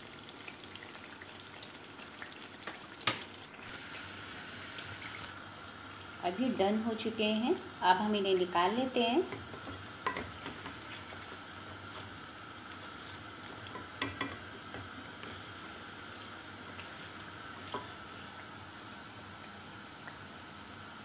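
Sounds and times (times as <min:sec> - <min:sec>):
eggplant sizzling in hot oil: 0:00.0 - 0:21.0
spatula knocking against pan: 0:09.3 - 0:10.8, 0:13.7 - 0:14.9.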